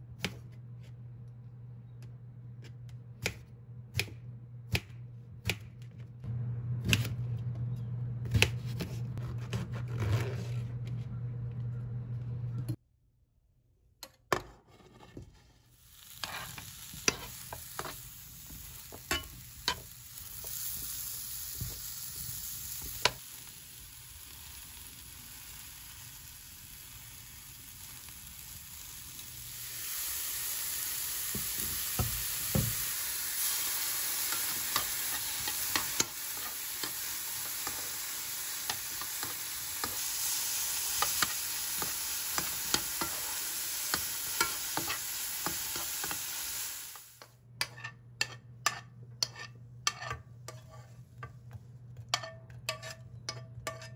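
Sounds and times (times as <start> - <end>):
spatula scraping a pan: 14.4 - 18.0, 34.0 - 40.0, 41.0 - 46.2, 47.6 - 51.4, 52.1 - 53.9
frying sizzle: 15.7 - 47.2.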